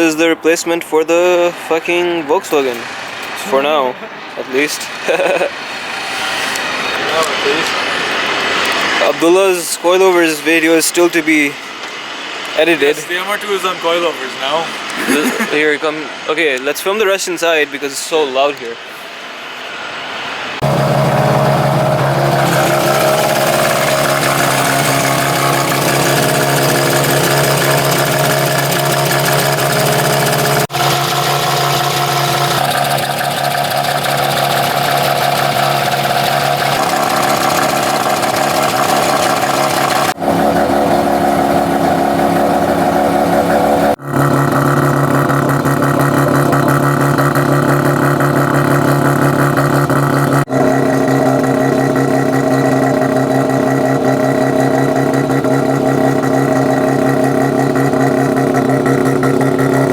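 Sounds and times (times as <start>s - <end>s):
rotary engine running: 20.6s - 59.9s.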